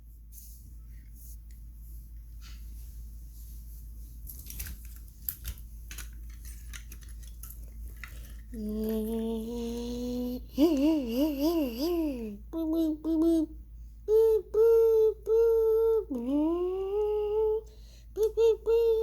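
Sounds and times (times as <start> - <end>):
toy cars clicking and knocking: 4.4 - 9.1
person humming: 8.6 - 19.0.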